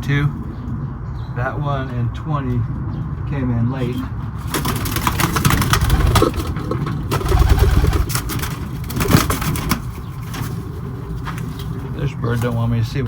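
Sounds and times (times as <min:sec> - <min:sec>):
pigeon wings flapping: 0:04.5 - 0:09.9.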